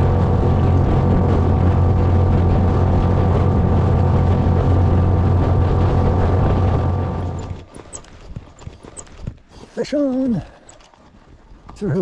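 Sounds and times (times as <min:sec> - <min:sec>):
outboard motor running: 0:00.0 - 0:09.6.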